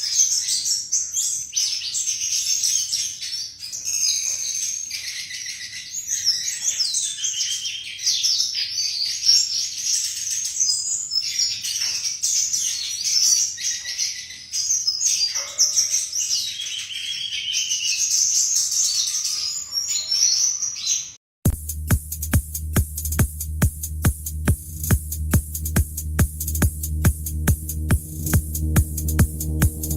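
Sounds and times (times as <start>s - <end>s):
bird singing chirps and trills: 0.0s - 21.2s.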